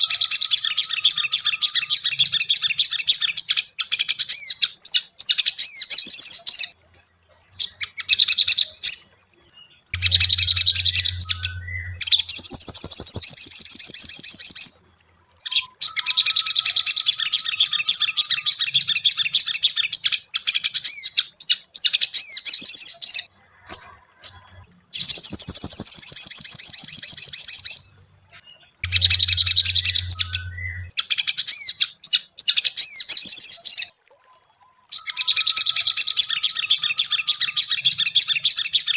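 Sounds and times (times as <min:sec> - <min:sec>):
low hum: 0:09.9 - 0:13.4, 0:28.1 - 0:30.9
insect chirping trills: 0:09.9 - 0:14.7, 0:25.0 - 0:27.8, 0:28.8 - 0:31.0.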